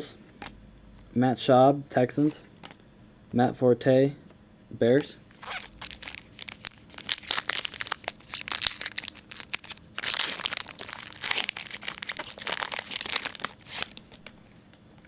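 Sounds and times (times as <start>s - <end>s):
plastic wrapper crinkling: 5.3s - 14.8s.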